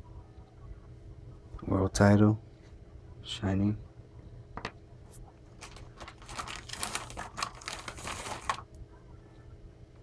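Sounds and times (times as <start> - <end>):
packaging crinkling: 5.5 - 8.8.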